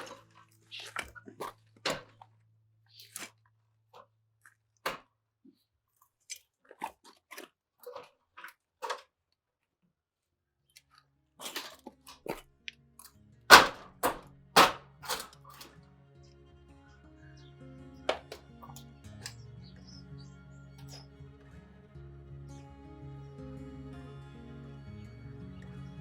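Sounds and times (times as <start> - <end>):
sharp crunches and clicks: 2.9 - 3.4
quiet music: 12.6 - 26.0.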